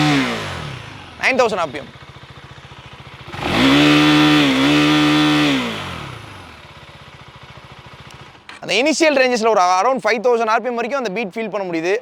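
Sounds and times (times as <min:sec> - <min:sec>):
motorcycle engine idling and revving: 0:00.0 - 0:09.2.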